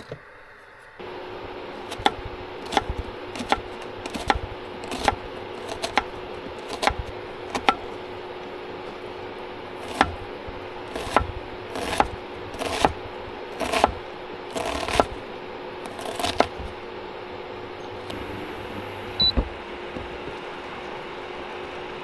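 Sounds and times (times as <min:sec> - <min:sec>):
steady hiss and low hum: 0:00.1 - 0:21.5
utensil scraping in a bowl: 0:01.1 - 0:17.0.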